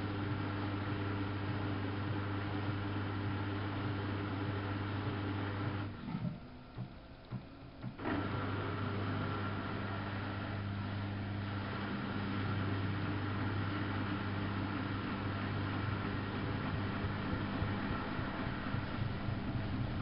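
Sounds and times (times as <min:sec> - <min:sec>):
washing machine drum motor humming: 0:00.0 - 0:20.0.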